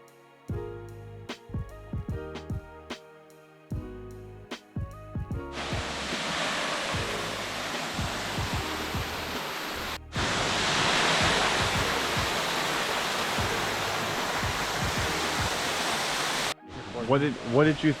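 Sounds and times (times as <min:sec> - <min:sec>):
faint background music: 0:00.0 - 0:18.0
waterfall rushing: 0:05.5 - 0:18.0.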